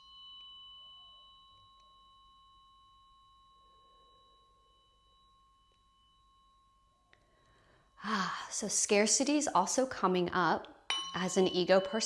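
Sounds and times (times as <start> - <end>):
tuning fork ringing: 0.0 - 8.0, 10.9 - 12.0.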